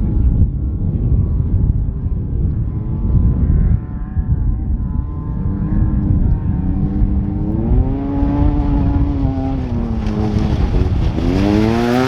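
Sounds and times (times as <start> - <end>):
off-road vehicle engine revving: 6.1 - 12.0.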